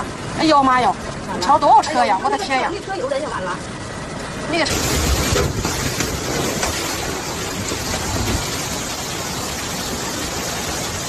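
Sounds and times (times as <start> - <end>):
heavy rain pouring: 3.8 - 11.0.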